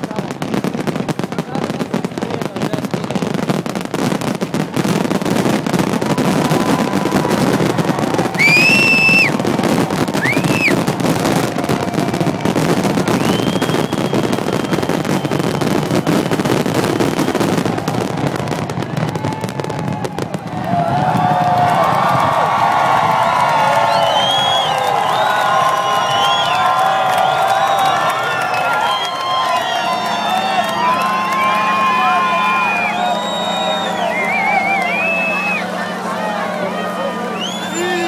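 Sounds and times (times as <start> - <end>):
fireworks crackling: 0.0 - 38.0
shrill firework whistles: 5.9 - 18.1, 23.0 - 35.6, 37.3 - 38.0.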